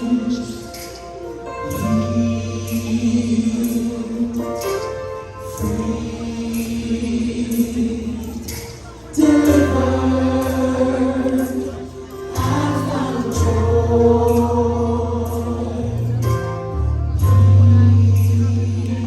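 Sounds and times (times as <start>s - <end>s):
choir singing with band: 9.1s - 16.3s.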